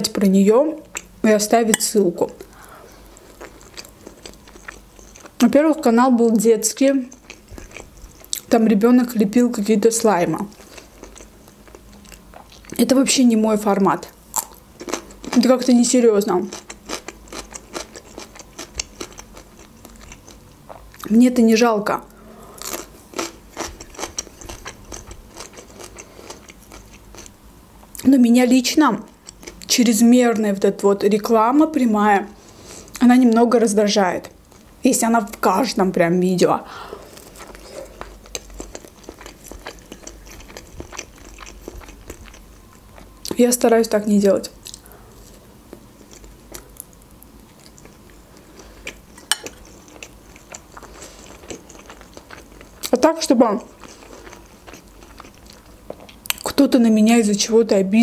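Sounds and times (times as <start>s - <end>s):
chewing crisp cucumber: 2.2s - 5.5s, 7.0s - 8.5s, 10.2s - 12.8s, 14.0s - 21.1s, 22.6s - 28.0s, 37.1s - 43.4s, 44.6s - 56.6s
chewing and wet mouth clicks: 37.4s - 42.4s, 53.6s - 56.6s.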